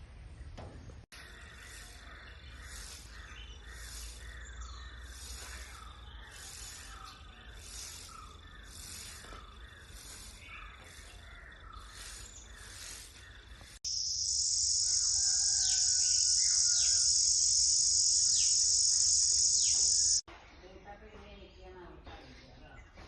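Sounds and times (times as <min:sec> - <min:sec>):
bird calls and whistles: 0:01.2 - 0:20.3
high-pitched insect buzz: 0:13.8 - 0:20.2
pulsing insect chorus: 0:13.8 - 0:20.2.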